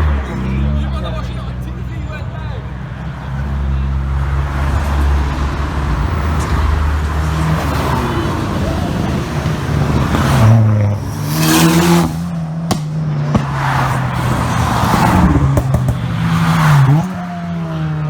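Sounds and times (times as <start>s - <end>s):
modified car engines revving: 0.0s - 18.0s
sharp cracks: 12.7s - 14.4s.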